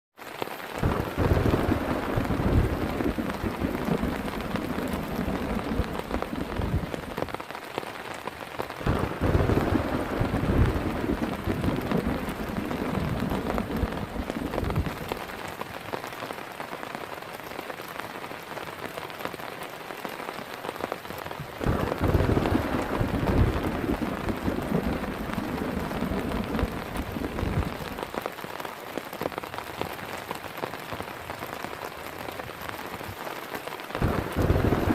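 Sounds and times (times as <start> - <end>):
heavy rain: 0.2 - 34.9
thunder rumbling: 0.8 - 7.4, 8.8 - 15.5, 21.6 - 28.2, 34.0 - 34.9.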